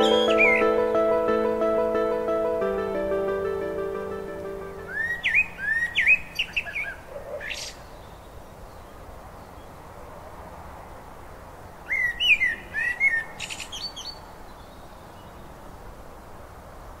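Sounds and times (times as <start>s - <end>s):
songbird chirping: 0.0s - 9.8s.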